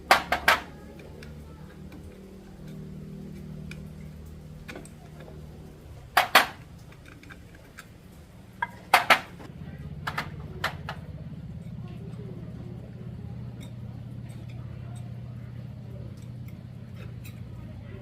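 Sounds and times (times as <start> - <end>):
low steady hum: 0.0 - 18.0
metal tools clinking: 13.5 - 15.4.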